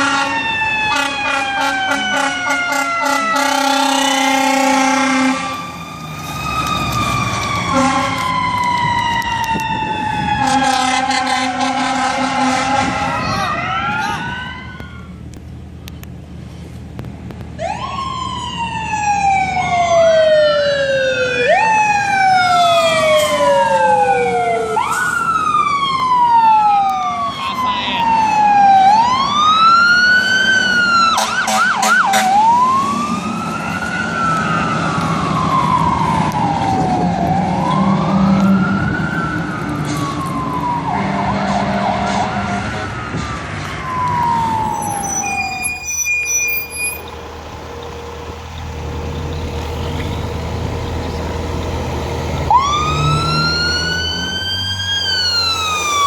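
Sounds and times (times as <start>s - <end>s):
horn blast: 0.0s - 5.6s, 7.7s - 8.3s, 10.4s - 13.4s
fire truck siren wailing: 0.0s - 15.4s, 17.5s - 56.0s
truck engine rumble: 0.0s - 56.0s.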